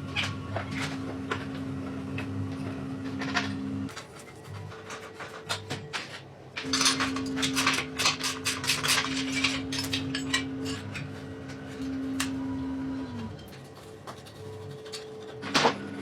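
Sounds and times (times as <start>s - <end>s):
metal objects clinking: 6.6s - 11.2s.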